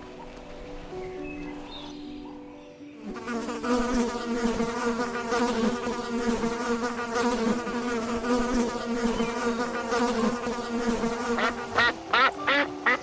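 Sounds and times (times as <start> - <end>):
insects buzzing: 3.0 - 13.0.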